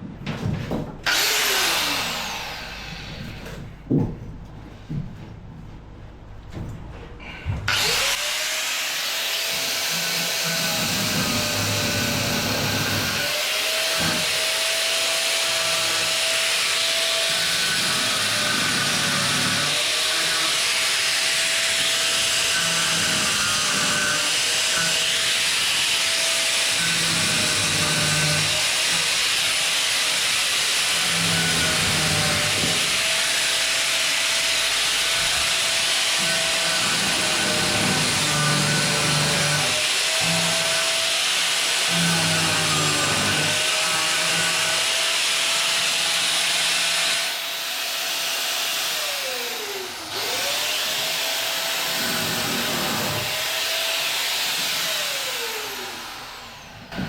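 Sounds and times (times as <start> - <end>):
power grinder grinding: 1.1 - 3.6, 7.2 - 57.0.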